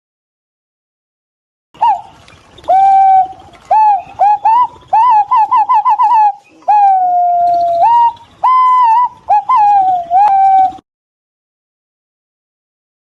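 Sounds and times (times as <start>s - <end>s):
pigeons whistling calls: 1.8s - 10.8s.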